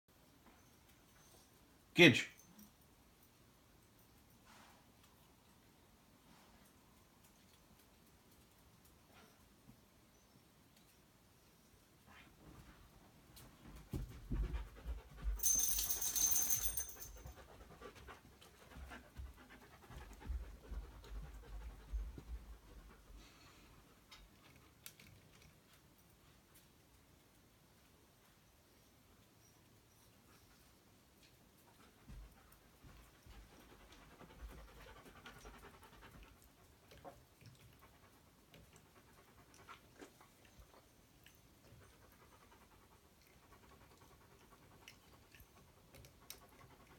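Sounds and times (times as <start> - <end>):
dog panting: 12.1 - 26.4, 31.5 - 46.9.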